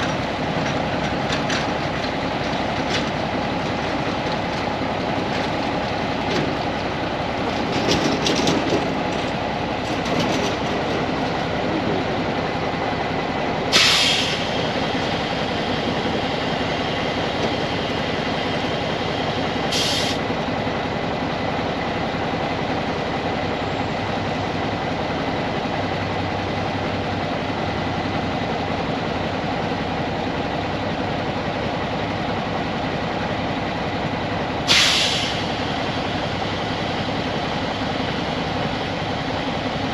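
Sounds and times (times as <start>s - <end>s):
diesel truck engine running: 0.0s - 39.9s
hydraulics working: 0.0s - 39.9s.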